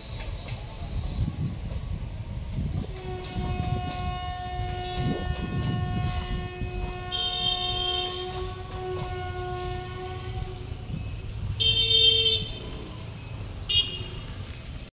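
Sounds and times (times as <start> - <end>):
train rumbling: 0.0 - 14.9
train horn blasts: 2.7 - 11.0, 11.6 - 12.7.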